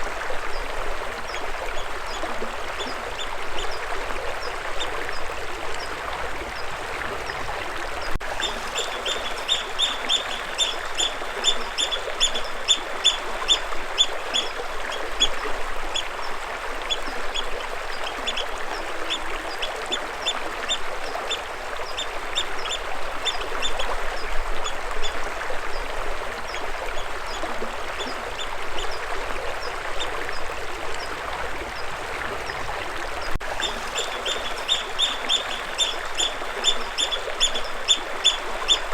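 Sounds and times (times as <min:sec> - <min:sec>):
stream water running: 0:00.0 - 0:38.9
bird chirping: 0:08.4 - 0:13.6, 0:33.6 - 0:38.8.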